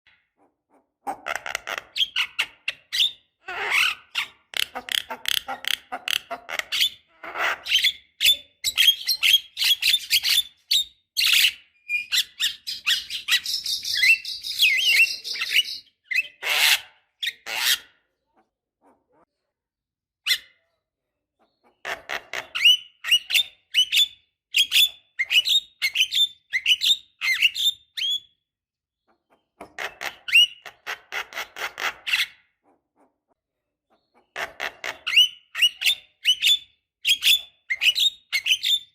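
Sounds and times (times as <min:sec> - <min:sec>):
bird chattering and whistling: 0:01.3 - 0:17.8, 0:33.9 - 0:38.9.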